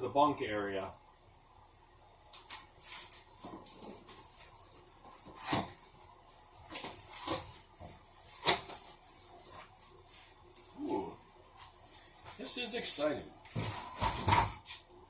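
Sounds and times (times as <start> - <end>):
objects knocking and rustling: 2.9 - 6.0, 13.4 - 14.9.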